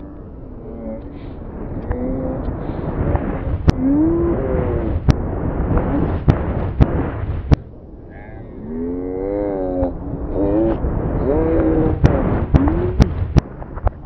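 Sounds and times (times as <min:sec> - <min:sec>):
deep continuous rumble: 0:00.0 - 0:14.0
low gliding pitched tones: 0:00.0 - 0:14.0
sharp reversed cracks: 0:01.7 - 0:07.8, 0:09.8 - 0:14.0.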